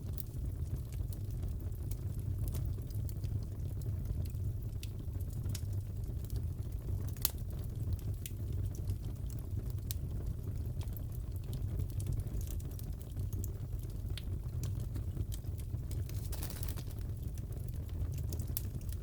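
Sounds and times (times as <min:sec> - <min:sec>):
fire popping and snapping: 0:00.0 - 0:19.0
fireplace logs burning: 0:00.0 - 0:19.0.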